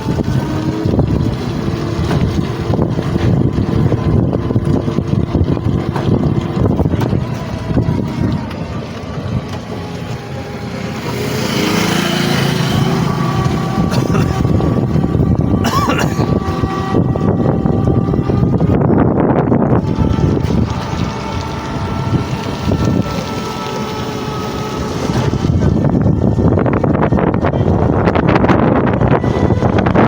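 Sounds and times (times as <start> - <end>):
faint engine-like tones: 0.0 - 30.0
wind buffeting microphone: 0.0 - 30.0
pitched tone rising: 9.8 - 30.0.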